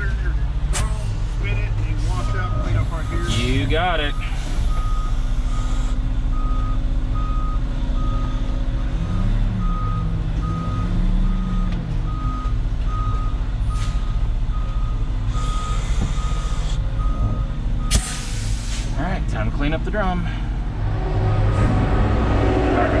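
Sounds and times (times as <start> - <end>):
diesel engine running: 0.0 - 23.0
reverse alarm beeping: 2.0 - 8.4, 9.1 - 18.0.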